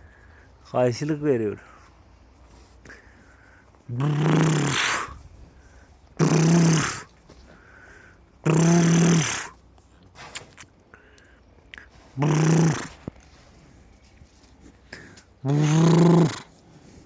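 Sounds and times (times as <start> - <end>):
cow mooing: 12.2 - 13.0, 15.4 - 16.5.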